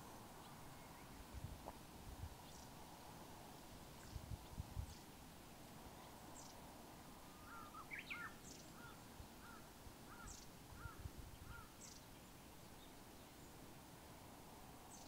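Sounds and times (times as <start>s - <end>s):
short arched bird calls: 7.3s - 12.0s.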